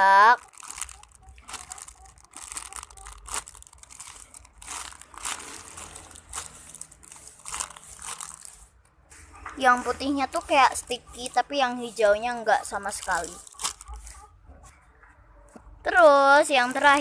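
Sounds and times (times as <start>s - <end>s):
plastic packaging crinkling: 0.0s - 8.8s, 10.3s - 14.3s, 16.4s - 17.0s.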